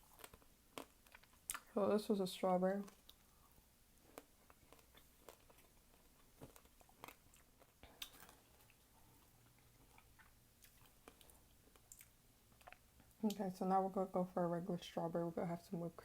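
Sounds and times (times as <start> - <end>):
chewing candied fruit: 0.0 - 1.8, 2.8 - 13.4.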